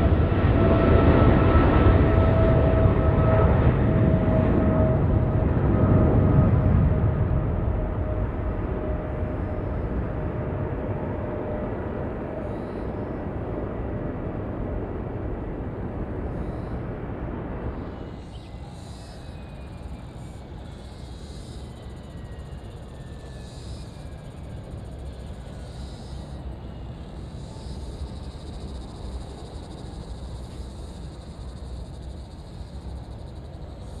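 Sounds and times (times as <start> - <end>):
distant airplane rumble: 0.0 - 34.0.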